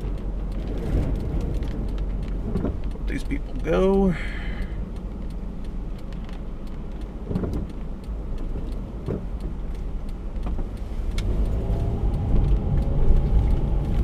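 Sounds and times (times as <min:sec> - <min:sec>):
wind buffeting: 0:00.0 - 0:03.6
light ticks on car: 0:00.0 - 0:14.0
road and engine rumble: 0:00.0 - 0:14.0.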